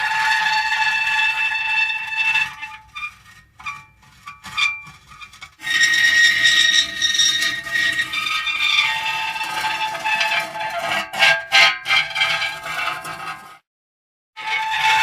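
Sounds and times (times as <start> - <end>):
metal creaking and squealing: 0.0 - 13.6, 14.4 - 15.0.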